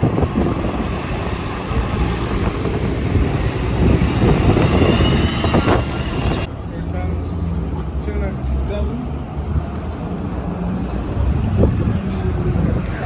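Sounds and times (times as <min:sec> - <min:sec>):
large vehicle engine rumble: 0:00.0 - 0:13.0.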